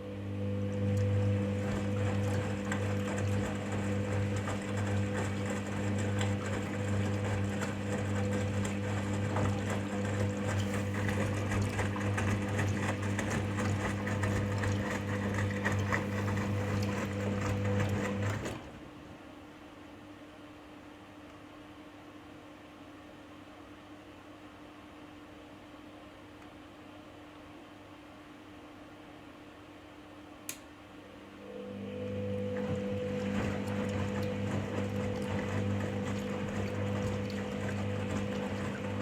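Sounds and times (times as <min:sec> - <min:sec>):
washing machine motor humming: 0:00.0 - 0:19.4, 0:31.0 - 0:39.0
water and laundry sloshing: 0:00.4 - 0:19.3, 0:31.9 - 0:39.0.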